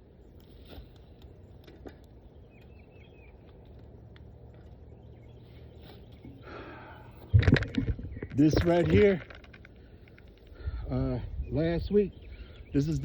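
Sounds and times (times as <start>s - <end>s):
faint clicks: 0.4s - 4.8s, 7.4s - 10.7s
faint bird chirps: 9.8s - 13.0s.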